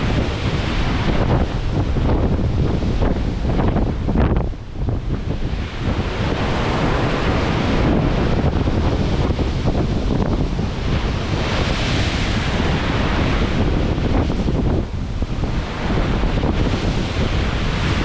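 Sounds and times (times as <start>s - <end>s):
heavy waves breaking: 0.0s - 18.0s
wind buffeting microphone: 0.0s - 18.0s.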